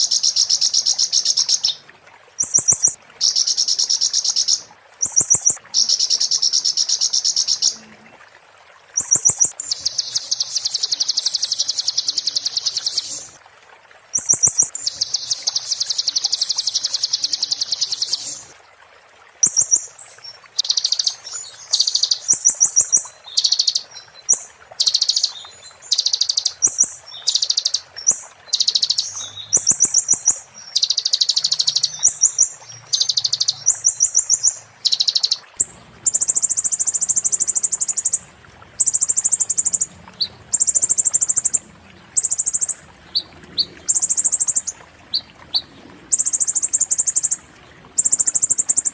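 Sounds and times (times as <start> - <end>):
sunbird trilling song: 0.0 - 1.8, 2.4 - 7.8, 9.0 - 13.4, 14.2 - 18.5, 20.6 - 38.2.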